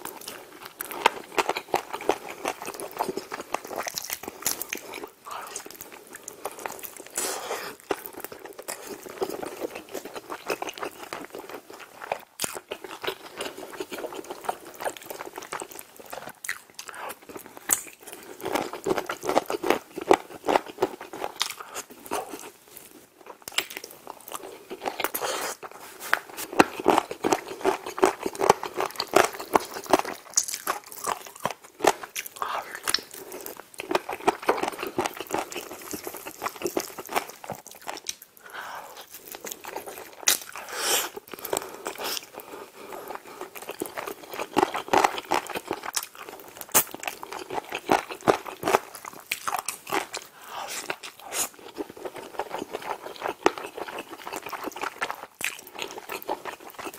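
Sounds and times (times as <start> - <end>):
person biting and chewing: 0.1 - 22.5, 23.2 - 56.9
crunchy bites: 43.1 - 56.9.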